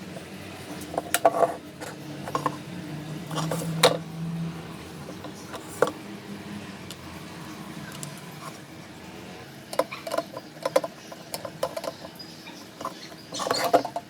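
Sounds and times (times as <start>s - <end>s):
electric kettle parts clicking: 0.8s - 4.1s, 5.0s - 6.0s, 6.8s - 7.1s, 7.8s - 8.6s, 9.6s - 14.0s.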